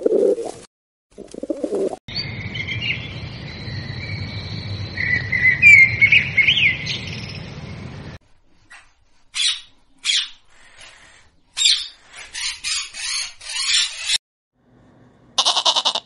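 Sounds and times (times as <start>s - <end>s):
small birds chirping: 2.1s - 14.2s.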